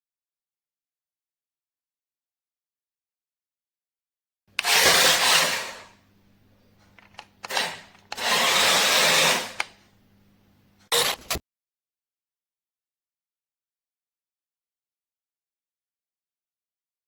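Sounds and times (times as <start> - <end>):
small electric motor whirring: 4.6 - 5.9, 7.5 - 9.7.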